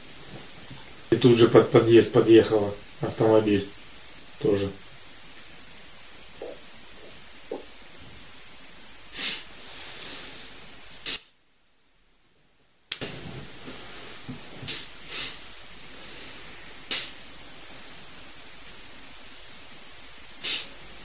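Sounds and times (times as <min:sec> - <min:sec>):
recording hiss: 0:00.0 - 0:21.0
sharp sniffs close to microphone: 0:09.1 - 0:11.3, 0:13.1 - 0:15.4, 0:16.0 - 0:17.2, 0:20.4 - 0:20.8.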